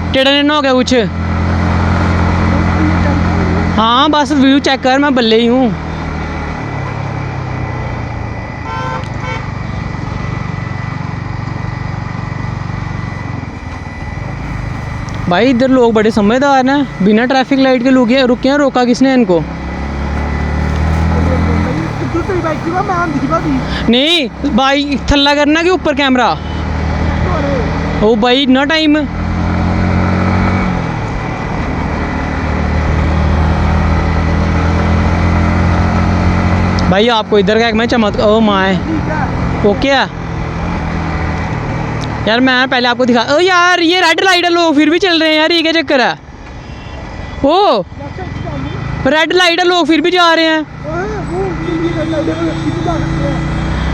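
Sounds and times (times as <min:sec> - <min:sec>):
motorcycle engine running: 0:00.0 - 0:42.7, 0:46.3 - 0:53.9
vehicle horn beeping: 0:08.6 - 0:09.7, 0:12.8 - 0:27.2, 0:46.6 - 0:47.4, 0:51.2 - 0:53.9.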